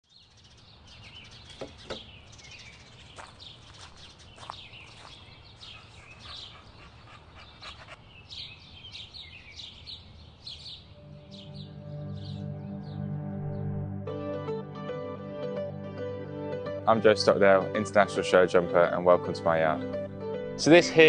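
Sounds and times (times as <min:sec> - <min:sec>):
small birds chirping and singing: 0:00.0 - 0:13.7.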